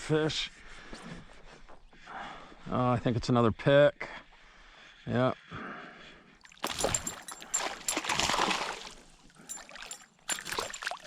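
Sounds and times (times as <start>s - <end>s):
fish splashing in water: 6.4s - 11.0s.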